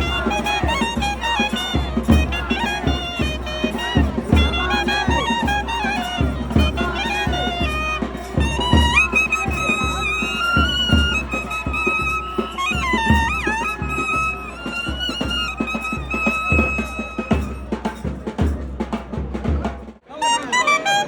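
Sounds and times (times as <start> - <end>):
double-reed horn melody: 0.0 - 18.0, 20.0 - 21.0
sharp drum strokes: 0.0 - 20.0.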